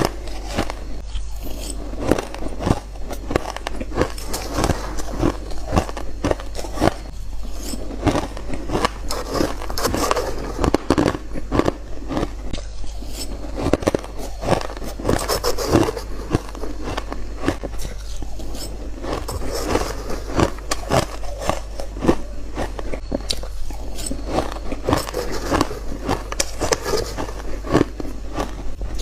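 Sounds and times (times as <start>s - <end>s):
ice crunching being bitten: 0.0s - 29.0s.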